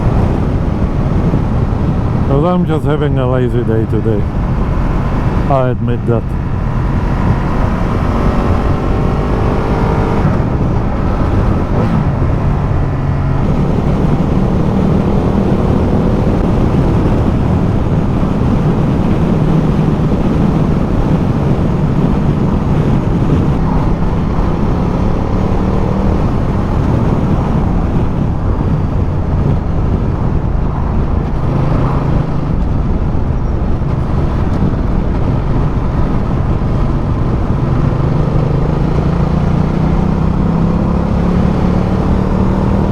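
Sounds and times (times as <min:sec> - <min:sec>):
wind noise: 0:00.0 - 0:42.9
motorcycle engine running: 0:04.1 - 0:42.9.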